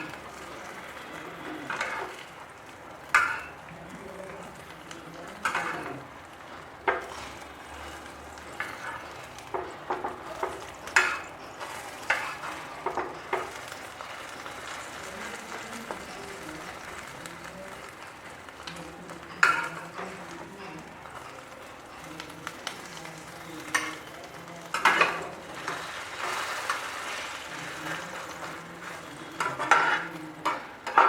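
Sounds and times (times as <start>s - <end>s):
oil sizzling: 0.0s - 31.0s
spatula scraping and knocking on pan: 3.1s - 3.5s, 8.6s - 13.5s, 29.4s - 31.0s.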